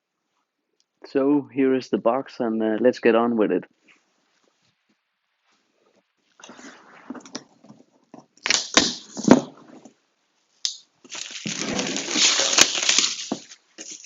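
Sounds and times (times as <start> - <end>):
cardboard rustling and tearing: 8.4 - 9.7, 11.1 - 14.0
cardboard box crackling: 11.1 - 14.0.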